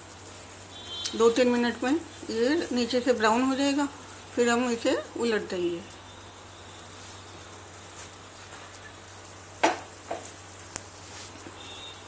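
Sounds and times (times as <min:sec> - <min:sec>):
faint sizzle on a pan: 0:00.0 - 0:12.0
sharp knocks: 0:09.6 - 0:10.2.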